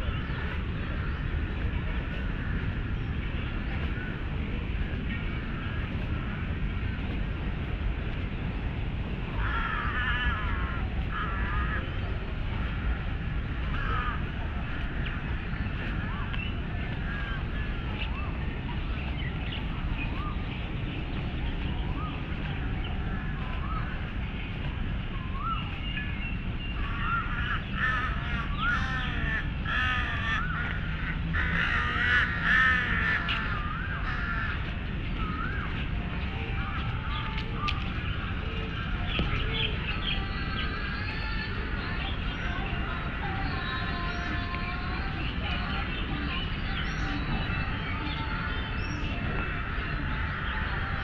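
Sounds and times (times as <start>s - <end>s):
steady low rumble: 0.0s - 51.0s
birds calling harshly: 9.4s - 12.0s, 12.7s - 36.2s.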